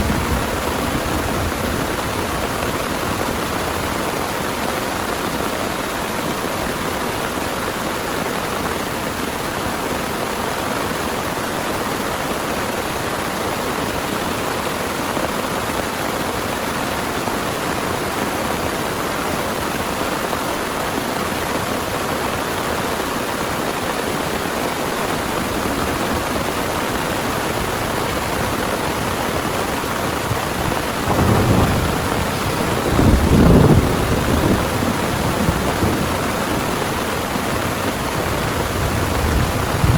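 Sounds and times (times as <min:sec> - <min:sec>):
heavy rain pouring: 0:00.0 - 0:39.9
deep thunder rumbles: 0:28.5 - 0:39.9.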